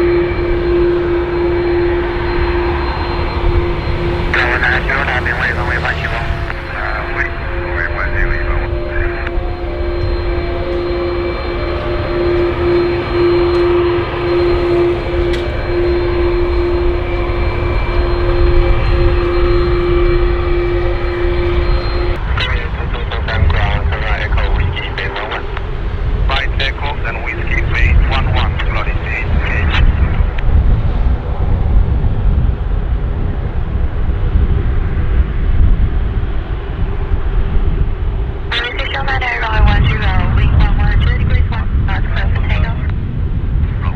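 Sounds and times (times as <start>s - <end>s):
faint steady hum: 0.0s - 22.2s
jet engines rumbling: 0.0s - 43.9s.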